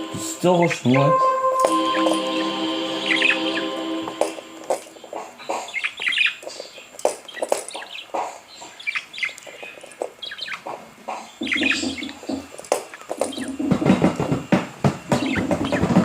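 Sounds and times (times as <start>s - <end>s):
birds chirping and twittering: 0.0s - 16.0s.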